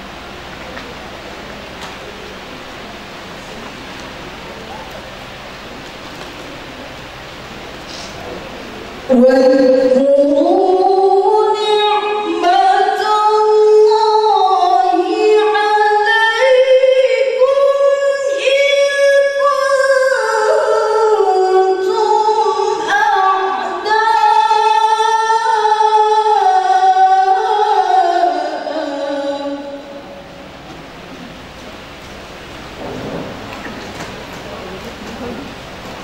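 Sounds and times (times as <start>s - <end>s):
woman reciting melodically: 9.0s - 30.6s.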